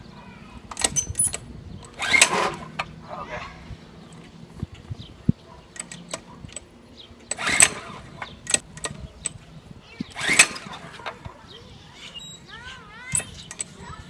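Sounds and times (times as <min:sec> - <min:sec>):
recoil starter whirring: 0:00.7 - 0:03.2, 0:05.7 - 0:11.2.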